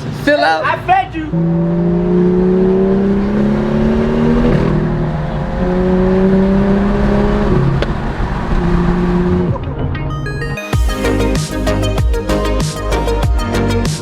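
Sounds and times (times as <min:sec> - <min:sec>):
car engine accelerating: 0:01.3 - 0:11.4.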